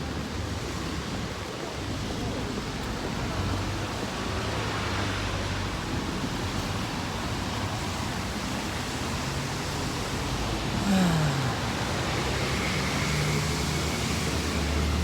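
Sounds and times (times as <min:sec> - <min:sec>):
rain: 0:00.0 - 0:15.0
traffic on wet road: 0:00.0 - 0:15.0
wind: 0:00.0 - 0:15.0.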